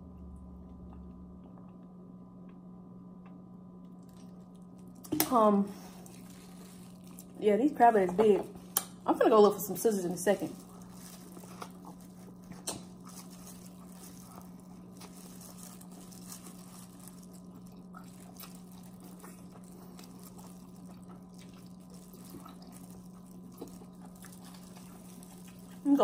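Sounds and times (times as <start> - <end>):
low steady hum: 0.0 - 26.0
faint chewing and mouth sounds: 0.2 - 7.4, 9.8 - 26.0.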